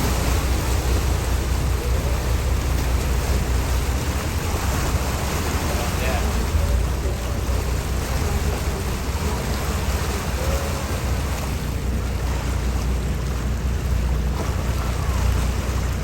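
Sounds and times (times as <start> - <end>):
constant low rumble: 0.0 - 16.0.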